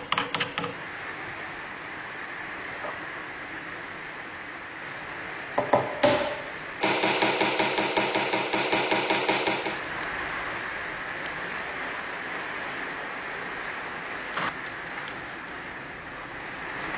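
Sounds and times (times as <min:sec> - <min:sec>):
steady background noise: 0:00.0 - 0:16.9
sharp knocks: 0:05.6 - 0:09.9
rapid ringing strikes: 0:06.1 - 0:09.9.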